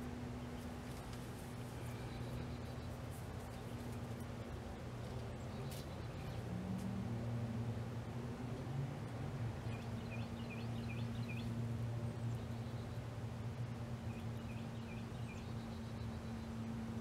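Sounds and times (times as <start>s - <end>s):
steady low hum: 0.0s - 17.0s
bird chirping: 9.6s - 13.1s, 14.1s - 16.7s.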